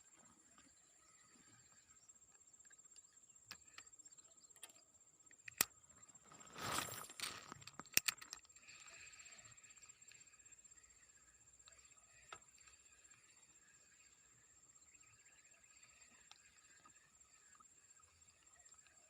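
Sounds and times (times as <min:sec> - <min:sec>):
reel clicks: 0:02.6 - 0:14.2.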